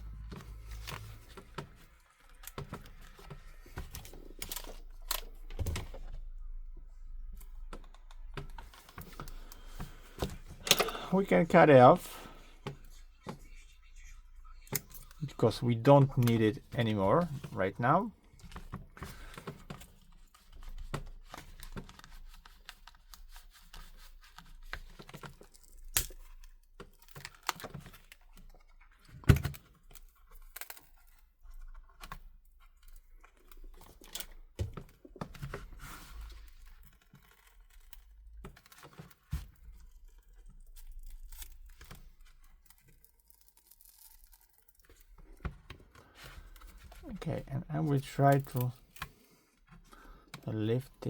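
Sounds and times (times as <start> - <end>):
glass scraping and crackling: 39.9 - 45.1.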